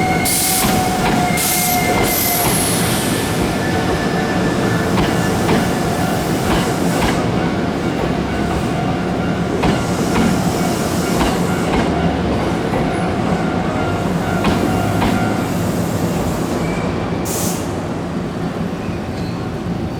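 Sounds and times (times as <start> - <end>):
train rumble: 0.0 - 19.9
train wheels clicking over rail joints: 0.1 - 13.3, 13.9 - 15.6.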